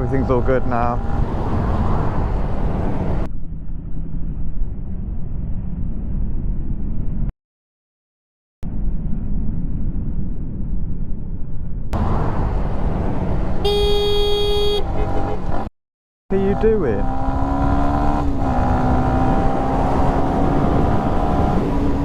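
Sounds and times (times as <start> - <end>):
motorcycle engine noise: 0.0 - 7.3, 8.7 - 15.7, 16.3 - 22.0
wind rumbling: 0.0 - 7.3, 8.6 - 13.7, 17.0 - 22.0.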